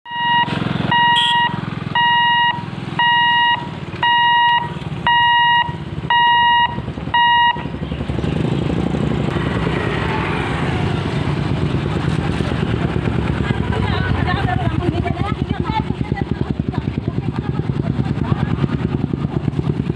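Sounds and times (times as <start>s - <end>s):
idling engines and traffic: 0.0s - 19.9s
level-crossing warning beeps: 0.1s - 7.7s.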